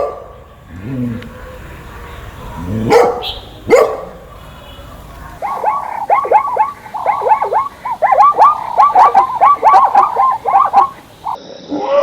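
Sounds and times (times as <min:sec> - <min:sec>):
chorus of quick chirps: 0:02.9 - 0:11.4.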